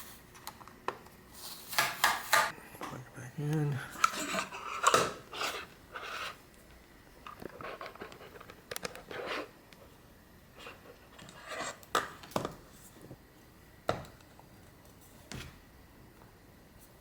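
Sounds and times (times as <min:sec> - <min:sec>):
plastic scrapes and rustles: 0:04.0 - 0:06.4, 0:07.2 - 0:09.5.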